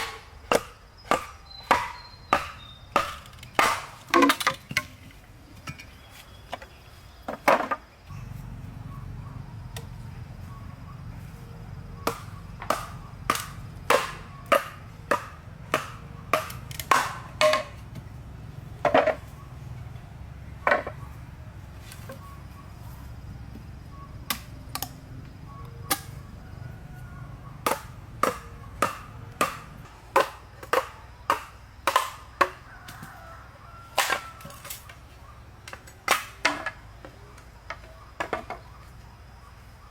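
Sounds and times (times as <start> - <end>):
blade chopping wood: 0.0 - 4.9, 12.0 - 18.1, 27.6 - 33.0
steady low hum: 8.1 - 30.2.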